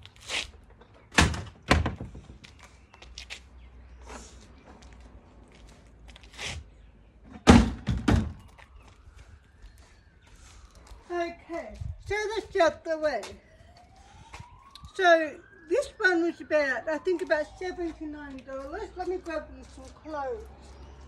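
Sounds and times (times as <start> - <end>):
plastic washing machine thunks: 1.2 - 2.2, 7.3 - 8.4.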